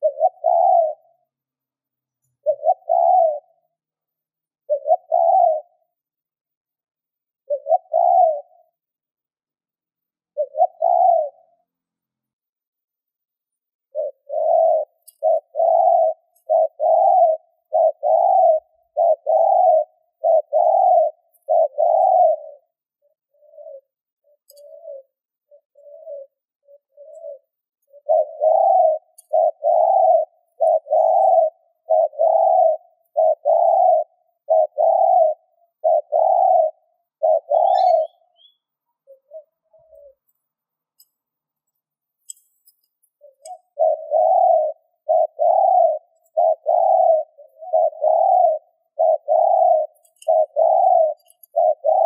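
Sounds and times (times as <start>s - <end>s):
dove cooing: 0.0s - 1.5s, 2.2s - 3.9s, 4.6s - 5.9s, 7.4s - 8.8s, 10.2s - 11.7s, 13.9s - 40.4s, 43.1s - 52.0s.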